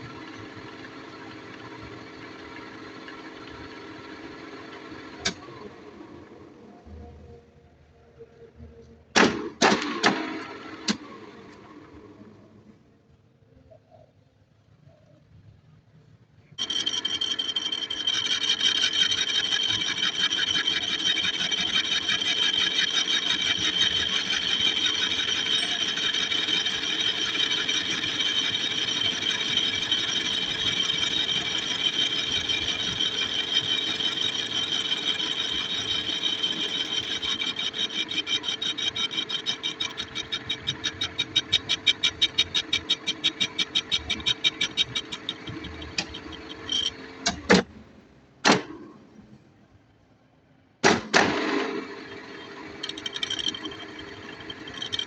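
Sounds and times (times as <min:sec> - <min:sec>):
lathe cutting steel with whine: 0:00.0 - 0:06.0, 0:16.6 - 0:47.4, 0:51.5 - 0:55.0.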